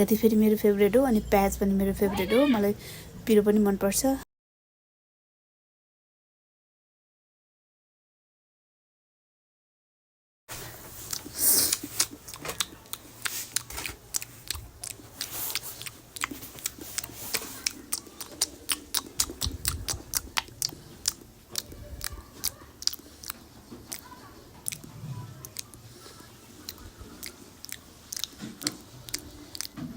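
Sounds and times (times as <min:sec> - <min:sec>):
crunching bites and chewing: 0:11.0 - 0:29.9.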